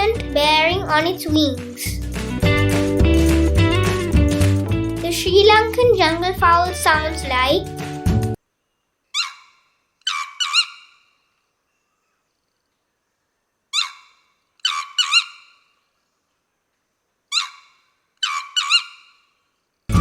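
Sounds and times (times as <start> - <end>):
junglefowl crowing: 9.2 - 11.0, 13.8 - 15.5, 17.3 - 19.0.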